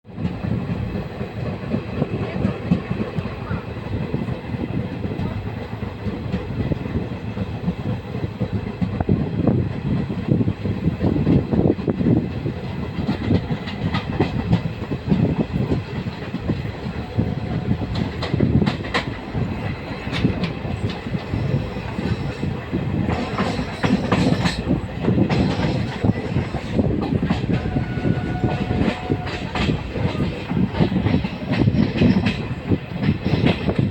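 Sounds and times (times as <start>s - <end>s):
train wheels rumbling on track: 0.0s - 33.9s.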